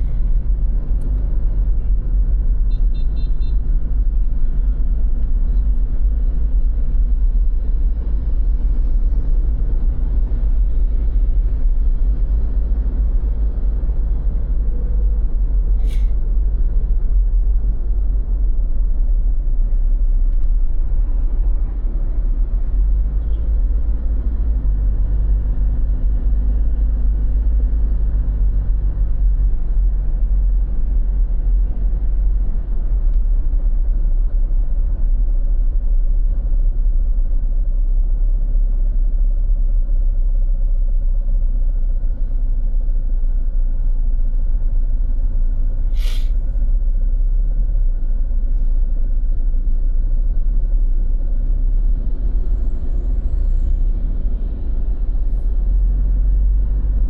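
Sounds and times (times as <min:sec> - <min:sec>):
road traffic rumble: 0:00.0 - 0:57.0
vehicle engine running: 0:00.0 - 0:57.0
short sharp hiss: 0:15.8 - 0:16.1, 0:45.9 - 0:46.5.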